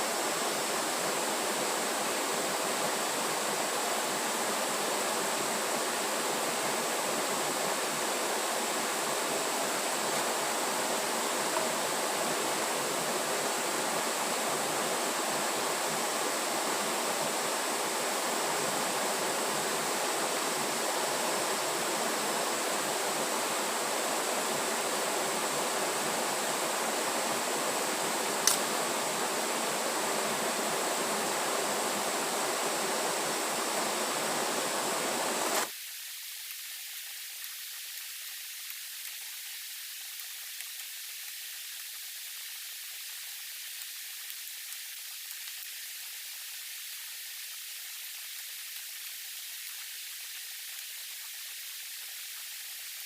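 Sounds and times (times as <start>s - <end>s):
water rushing: 0.0s - 53.0s
sharp click: 28.4s - 28.7s.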